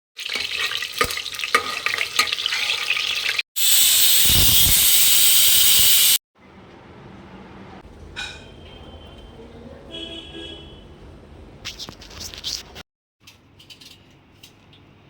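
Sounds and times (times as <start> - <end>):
food sizzling in a pan: 0.2 - 6.2
loud steady hiss: 3.6 - 6.2.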